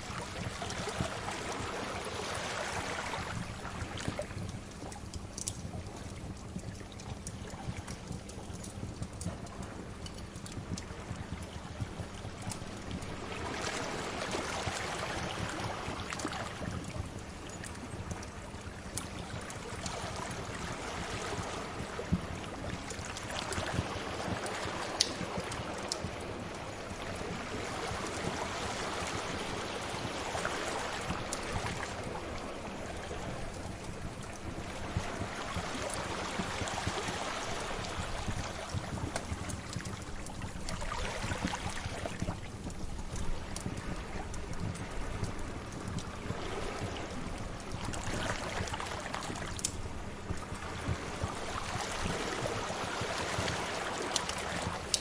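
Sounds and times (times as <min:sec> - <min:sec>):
sea waves washing in: 0:00.0 - 0:04.4, 0:12.6 - 0:17.4, 0:19.6 - 0:55.0
fire crackling pops: 0:03.6 - 0:13.2, 0:22.1 - 0:26.2, 0:48.6 - 0:51.4, 0:53.0 - 0:55.0.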